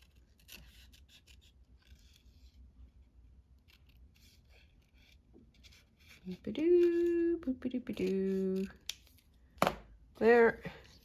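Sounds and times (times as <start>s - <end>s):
scissors cutting paper: 3.6s - 9.2s.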